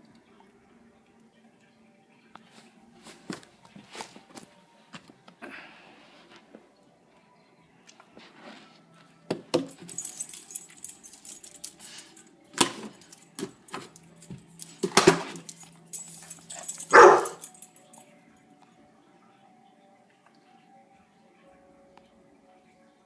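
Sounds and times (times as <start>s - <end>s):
jangling and rattling: 9.6s - 18.0s
dog barking: 16.6s - 17.5s.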